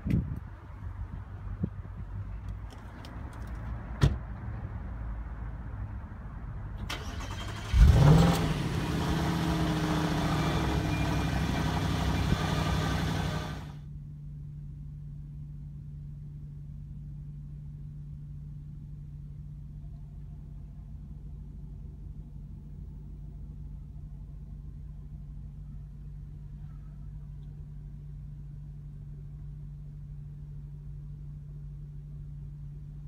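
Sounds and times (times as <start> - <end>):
car engine idling: 6.9 - 13.8.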